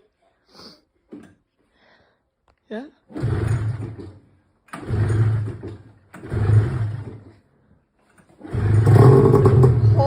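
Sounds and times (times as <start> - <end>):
snowmobile engine bursts: 6.2 - 7.2, 8.4 - 10.0.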